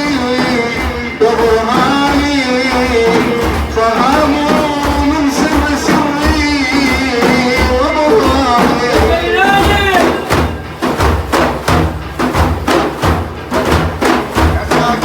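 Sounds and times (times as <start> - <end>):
man singing devotional song: 0.0 - 10.6, 14.5 - 15.0
hand drums beating: 0.0 - 15.0.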